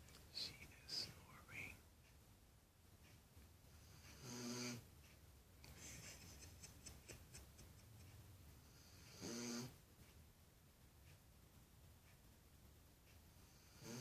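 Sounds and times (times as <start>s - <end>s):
dog snoring: 3.8s - 4.9s, 8.6s - 9.8s, 13.4s - 14.0s.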